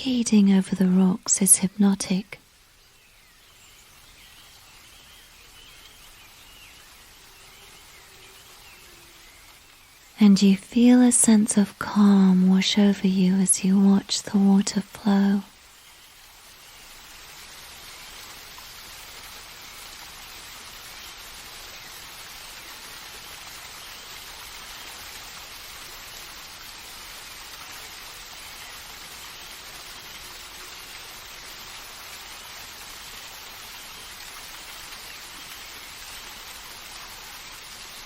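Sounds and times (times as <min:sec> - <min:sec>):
water rushing over rocks: 0:10.8 - 0:38.0.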